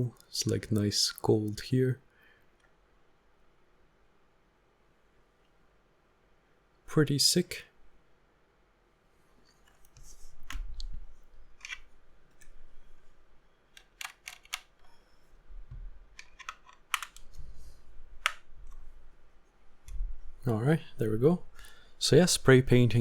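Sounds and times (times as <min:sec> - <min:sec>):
keyboard plastic clicks: 0:13.8 - 0:14.8, 0:16.2 - 0:17.3.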